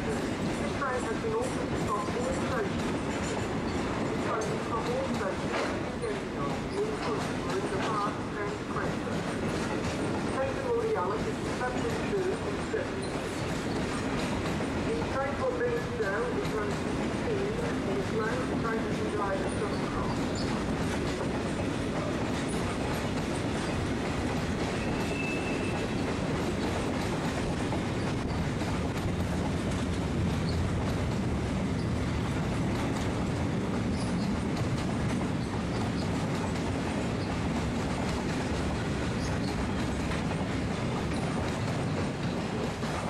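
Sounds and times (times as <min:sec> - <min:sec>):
train wheels clattering over track: 0:00.0 - 0:43.0
high-pitched wheel squeal: 0:24.8 - 0:25.9.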